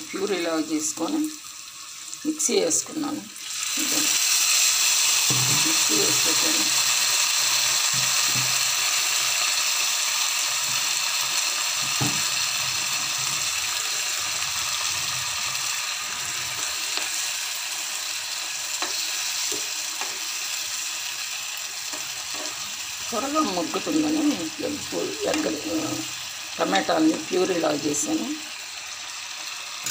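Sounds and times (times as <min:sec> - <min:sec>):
food sizzling in a pan: 0:00.0 - 0:29.9
spatula knocking a pan: 0:05.2 - 0:05.8.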